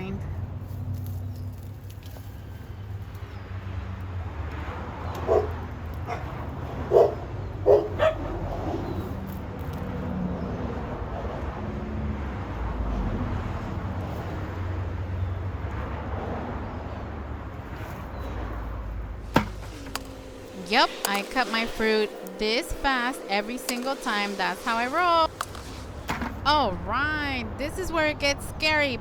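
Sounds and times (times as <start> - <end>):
dog barking: 5.2 - 8.8
steady low rumble: 18.6 - 29.0.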